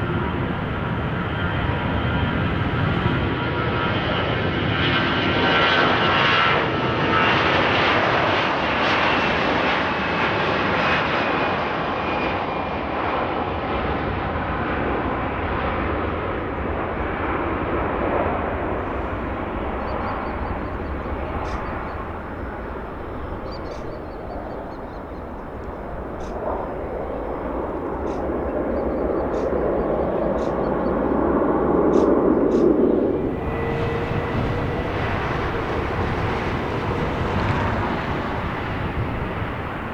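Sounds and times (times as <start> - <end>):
aircraft engines whining: 0.0 - 39.9.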